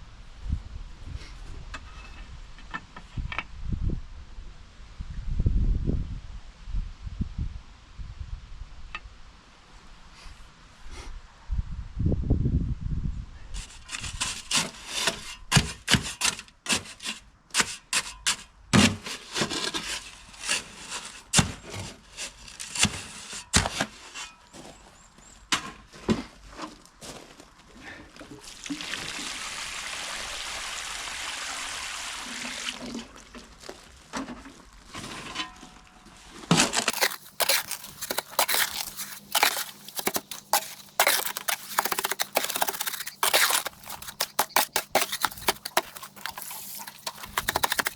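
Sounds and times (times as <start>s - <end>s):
hand tools scraping soil: 13.6s - 24.8s, 36.4s - 47.9s.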